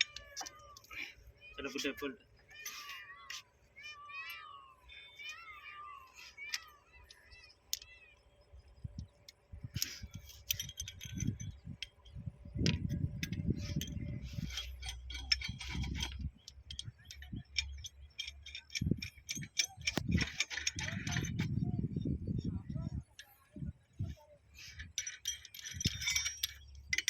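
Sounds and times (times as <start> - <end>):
metal clinking and rattling: 0.0 - 3.5, 9.3 - 22.2, 22.9 - 27.0.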